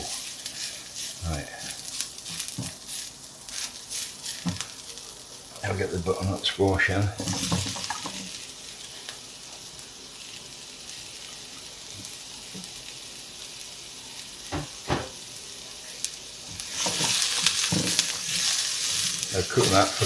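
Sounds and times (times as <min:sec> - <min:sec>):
spatula stirring a pan: 0:00.0 - 0:05.1, 0:07.2 - 0:09.8, 0:16.0 - 0:20.0
vegetables sizzling in hot oil: 0:00.0 - 0:20.0.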